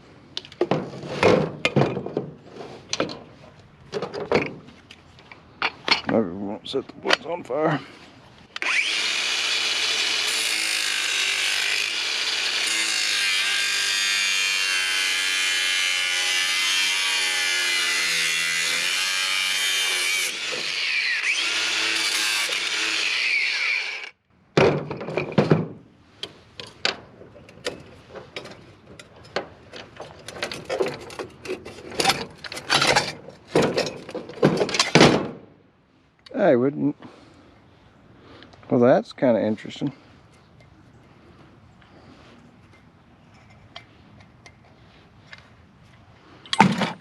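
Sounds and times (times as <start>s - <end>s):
angle grinder cutting metal: 8.6s - 24.2s
metal knocks and clatters: 26.6s - 35.4s.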